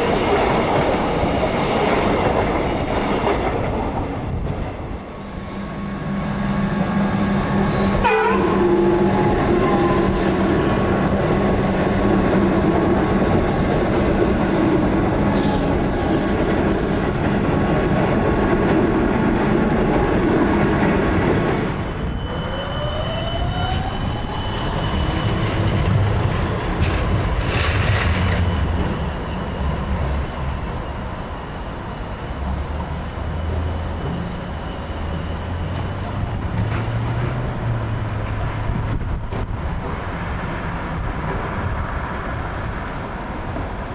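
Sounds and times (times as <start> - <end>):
electric train running on rails: 0.0 - 43.9
wheel squeal: 7.7 - 8.2, 22.0 - 25.9.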